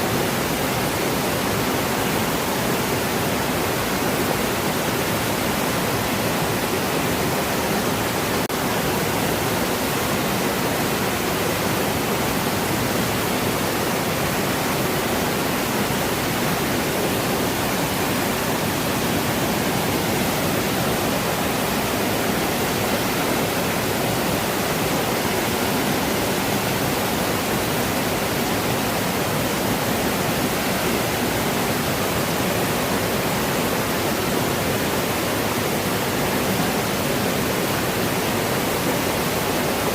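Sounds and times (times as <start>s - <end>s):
falling water rushing: 0.0s - 39.9s.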